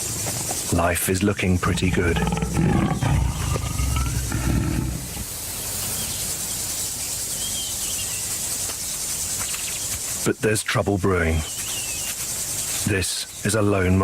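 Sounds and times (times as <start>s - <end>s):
insects humming: 0.0s - 14.0s
lion calling: 1.5s - 5.3s.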